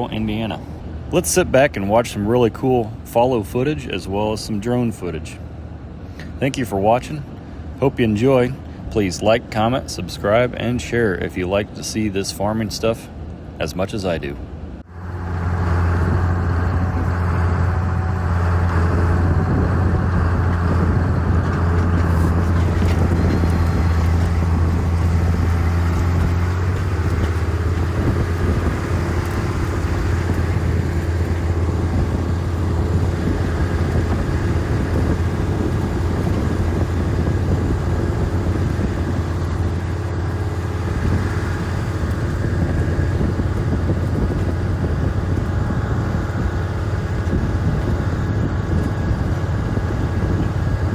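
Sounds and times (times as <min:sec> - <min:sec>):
higher steady hum: 0:00.0 - 0:50.9
vehicle engine droning: 0:14.4 - 0:50.9.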